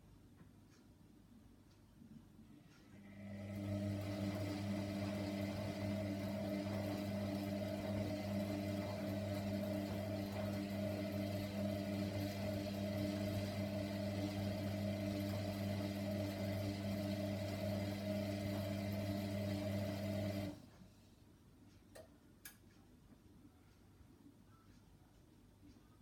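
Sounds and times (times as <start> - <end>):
washing machine hum: 2.8 - 20.8.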